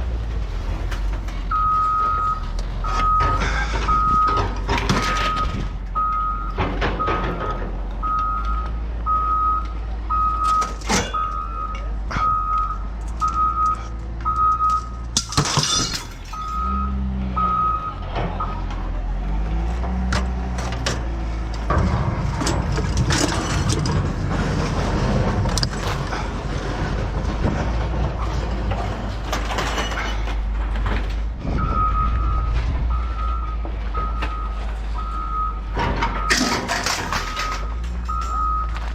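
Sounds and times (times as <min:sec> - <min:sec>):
diesel engine rumble: 0:00.0 - 0:38.9
reversing alarm beeping: 0:01.5 - 0:04.4, 0:05.0 - 0:15.4, 0:16.3 - 0:18.8, 0:31.4 - 0:38.8
metal clanks: 0:10.4 - 0:12.4, 0:14.7 - 0:16.7, 0:19.8 - 0:31.8, 0:35.6 - 0:38.9.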